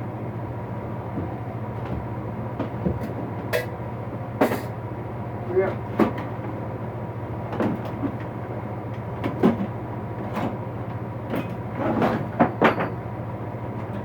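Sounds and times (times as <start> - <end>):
tools knocking and clattering: 12.1 - 13.0.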